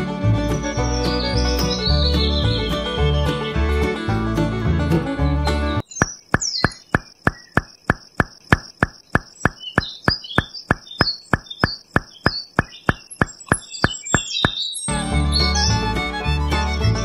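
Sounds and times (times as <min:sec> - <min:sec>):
bird-like chirps: 0:00.7 - 0:02.7, 0:05.8 - 0:15.8
high insect trill: 0:05.8 - 0:14.7
regular clicking: 0:05.8 - 0:14.7.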